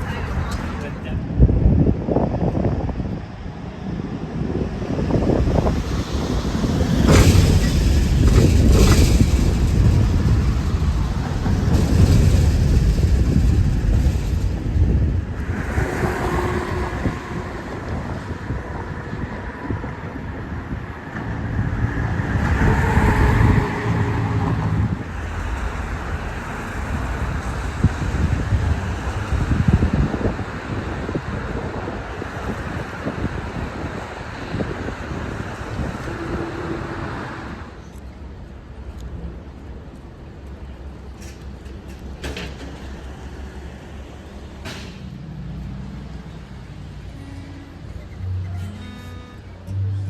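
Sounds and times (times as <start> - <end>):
wind rumbling on microphone: 0.0 - 48.1
city street traffic: 0.0 - 50.0
vehicle passing: 4.4 - 19.8, 21.2 - 31.3.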